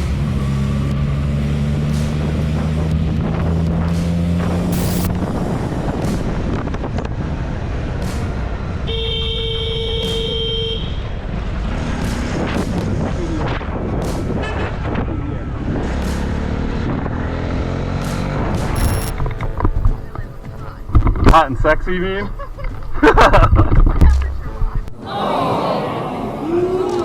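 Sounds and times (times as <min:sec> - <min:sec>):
road traffic noise: 0:00.0 - 0:21.1
vehicle horn: 0:08.8 - 0:11.2.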